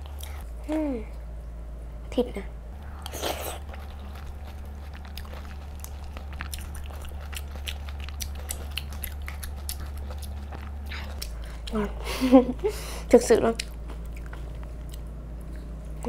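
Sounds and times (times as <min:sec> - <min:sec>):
low hum: 0:00.0 - 0:16.0
mouth chewing wetly: 0:02.8 - 0:11.8.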